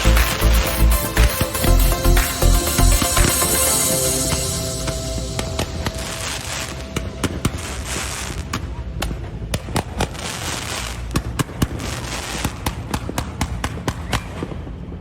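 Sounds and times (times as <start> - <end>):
crackling hiss: 0.0 - 8.7
fireworks bangs: 2.3 - 15.0.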